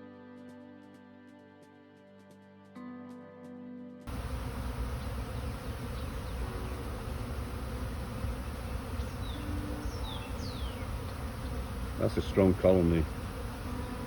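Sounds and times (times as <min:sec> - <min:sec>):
bees buzzing: 0:04.1 - 0:14.0
single bee passing close: 0:04.1 - 0:14.0.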